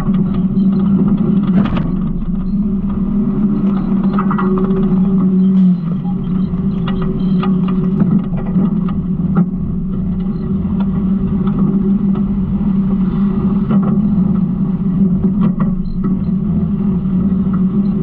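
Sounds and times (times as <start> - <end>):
garbage truck engine running: 1.3 - 4.0.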